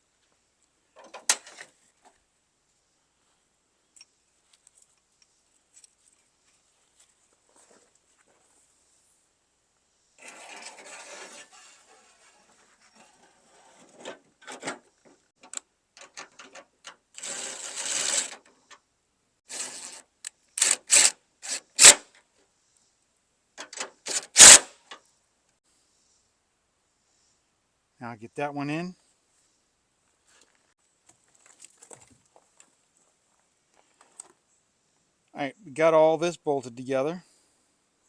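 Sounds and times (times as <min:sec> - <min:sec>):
rasping burst: 0:17.2 - 0:18.4, 0:20.6 - 0:22.0, 0:24.1 - 0:24.7.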